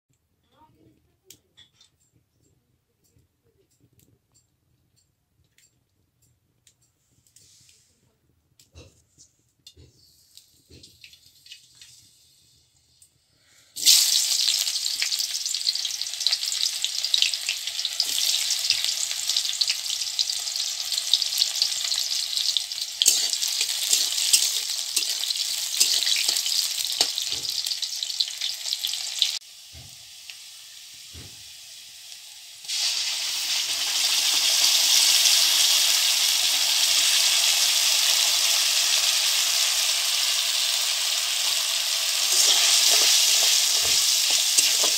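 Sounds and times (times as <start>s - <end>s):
onions sizzling in hot oil: 10.2s - 13.0s, 13.8s - 44.9s
metal spatula scraping pan: 21.9s - 27.5s, 42.2s - 44.9s.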